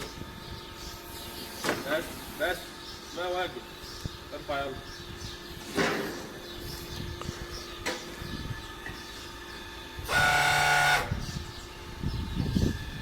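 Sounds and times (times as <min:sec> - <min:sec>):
loud steady mechanical hiss: 0:00.0 - 0:04.8, 0:09.8 - 0:11.3.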